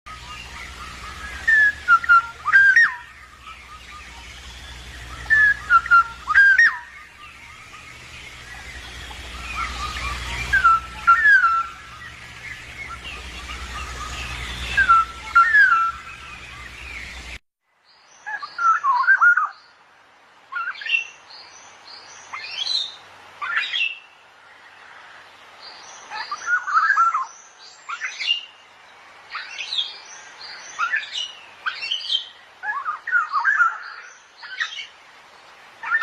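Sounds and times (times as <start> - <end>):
bird fluty whistled song: 0.1 - 17.4, 18.2 - 19.6, 26.1 - 28.5, 29.3 - 34.9.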